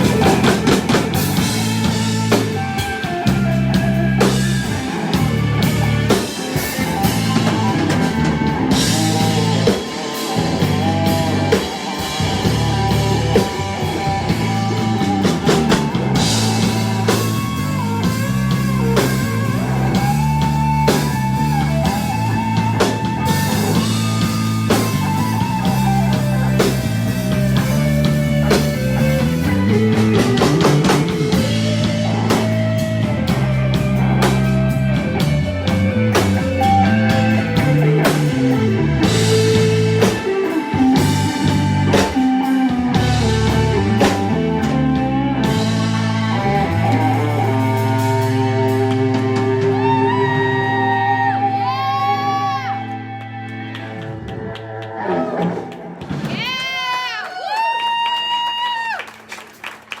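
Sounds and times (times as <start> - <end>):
bass line: 0.0 - 56.6
lead electric guitar: 0.0 - 56.8
drum kit: 0.0 - 60.0.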